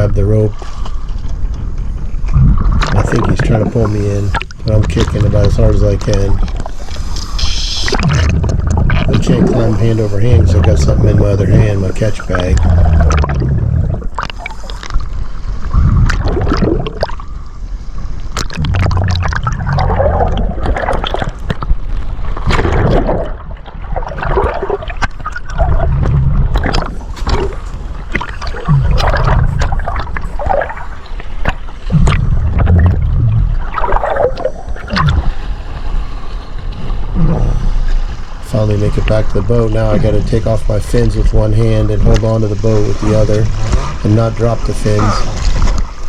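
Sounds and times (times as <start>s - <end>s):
seawater sloshing and gurgling: 0.0s - 46.0s
sharp water splashes: 2.7s - 17.4s, 18.3s - 35.4s.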